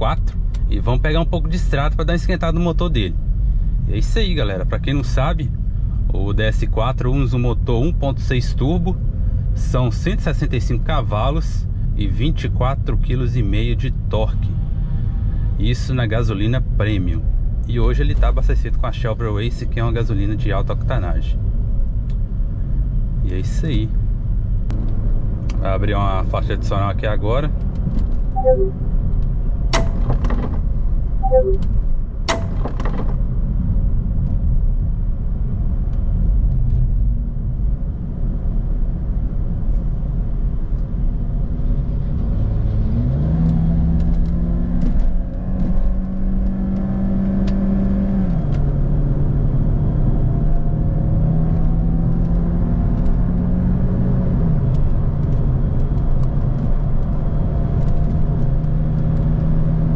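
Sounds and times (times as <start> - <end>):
road rumble: 0.0 - 59.9
sharp click: 29.8 - 30.6, 32.3 - 33.2.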